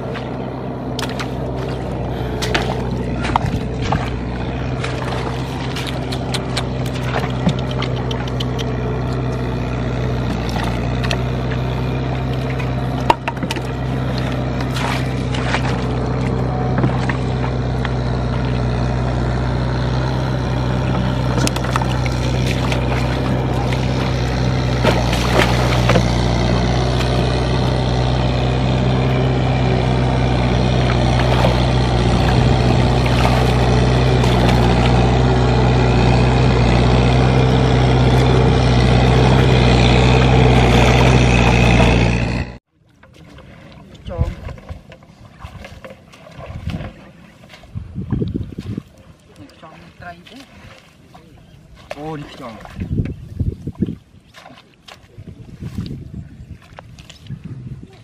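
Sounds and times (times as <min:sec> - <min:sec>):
tractor engine running: 0:00.0 - 0:42.7.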